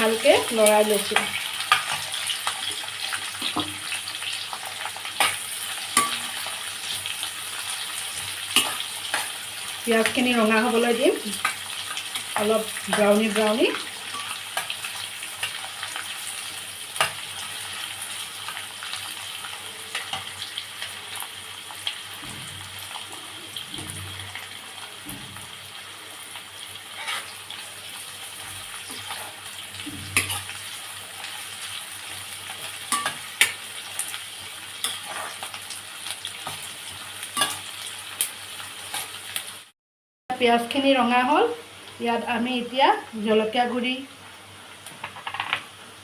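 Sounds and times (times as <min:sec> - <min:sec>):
onions sizzling in hot oil: 0:00.0 - 0:39.7, 0:40.4 - 0:46.0
spatula scraping a pan: 0:26.9 - 0:27.6, 0:34.8 - 0:35.6.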